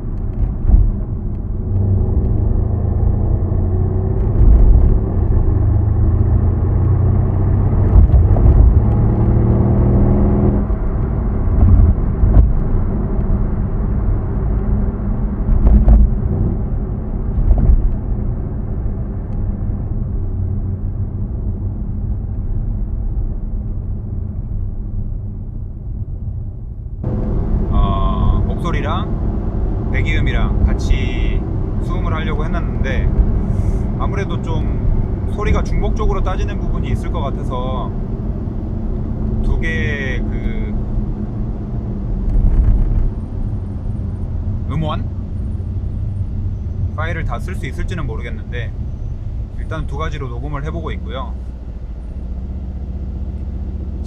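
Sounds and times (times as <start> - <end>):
car exhaust rumble: 0.0 - 54.0.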